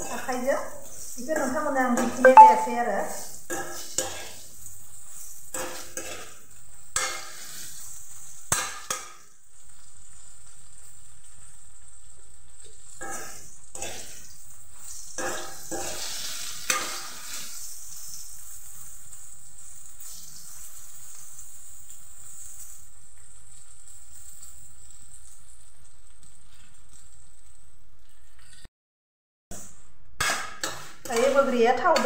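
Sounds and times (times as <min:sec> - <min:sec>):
fruit sizzling in oil: 0:00.0 - 0:28.4, 0:30.3 - 0:32.0
spoon clinking on pan: 0:02.2 - 0:02.8
metal spoon scraping a pan: 0:03.5 - 0:09.2, 0:12.9 - 0:18.9, 0:30.2 - 0:32.0.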